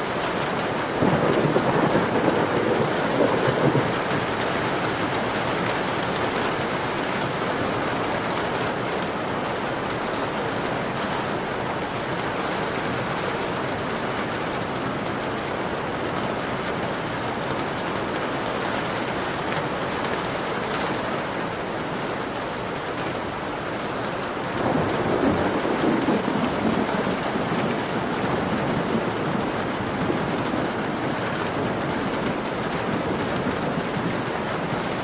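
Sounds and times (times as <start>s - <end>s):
rain on a window: 0.0s - 35.0s
thunder rumbling: 0.6s - 7.8s, 24.6s - 35.0s.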